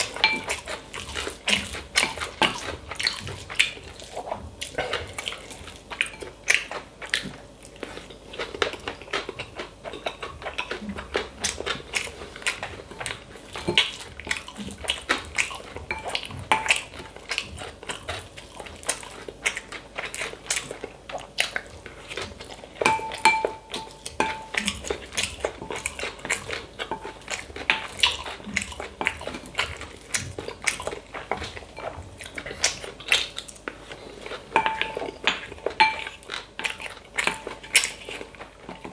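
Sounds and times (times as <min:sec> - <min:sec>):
chewing and biting: 0:00.0 - 0:38.9
spoon clinking against bowl: 0:00.2 - 0:00.6, 0:22.8 - 0:24.6, 0:35.8 - 0:36.1.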